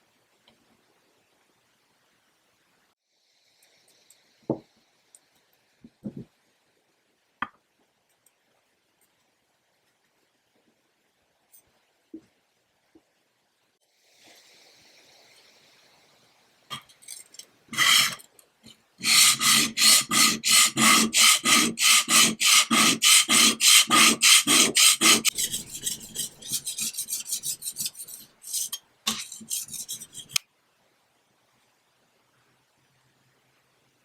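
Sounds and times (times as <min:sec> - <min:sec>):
sanding wood by hand: 0:17.8 - 0:18.2, 0:19.0 - 0:30.4.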